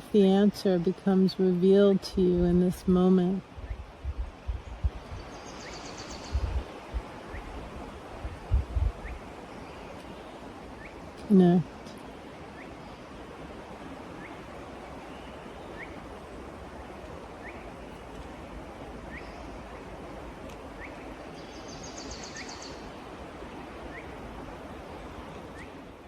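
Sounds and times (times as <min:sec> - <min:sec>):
steady rushing hiss: 0:00.0 - 0:26.0
bird chirping: 0:04.8 - 0:06.6, 0:20.8 - 0:23.0.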